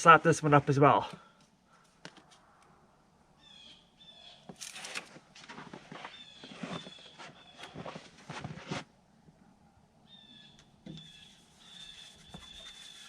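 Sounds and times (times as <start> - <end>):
bird chirping: 3.4 - 4.5, 6.1 - 7.9, 10.0 - 13.0.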